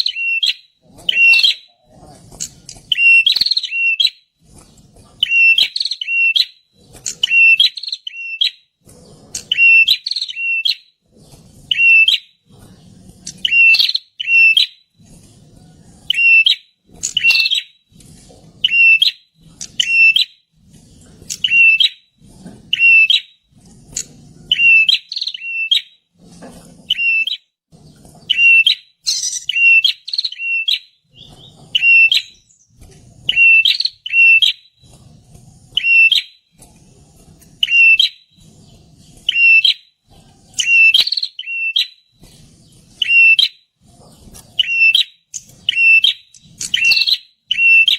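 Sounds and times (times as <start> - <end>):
bird chirping sharply: 2.9 - 4.2, 16.1 - 17.7, 28.3 - 32.7, 44.6 - 47.9.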